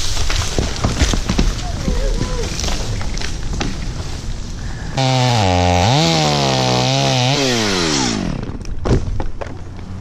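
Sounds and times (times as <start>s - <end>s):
chainsaw engine: 5.0s - 8.6s.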